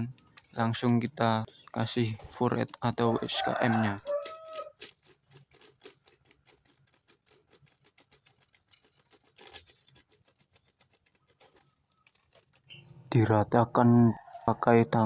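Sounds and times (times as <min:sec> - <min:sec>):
bird feed pattering on banana: 0:02.0 - 0:13.1.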